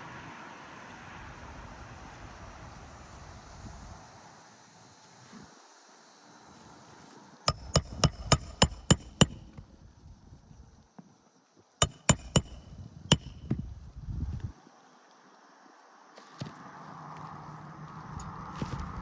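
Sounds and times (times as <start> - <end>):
hammer driving nails: 7.5 - 9.6, 11.8 - 13.6.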